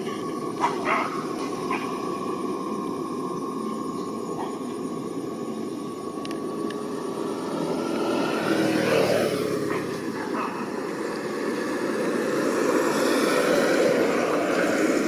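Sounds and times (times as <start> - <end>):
engine drone with held tone: 0.0 - 15.0.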